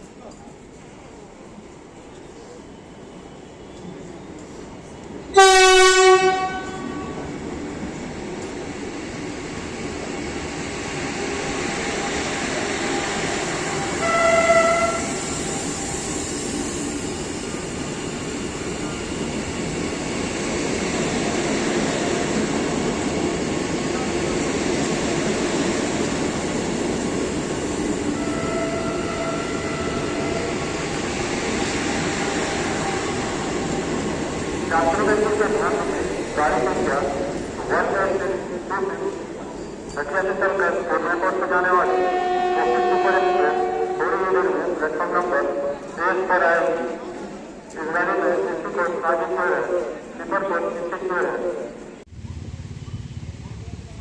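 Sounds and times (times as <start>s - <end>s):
train passing at speed: 0.0s - 54.0s
train horn blast: 5.3s - 7.2s, 13.8s - 15.2s, 28.1s - 30.8s, 41.8s - 44.2s.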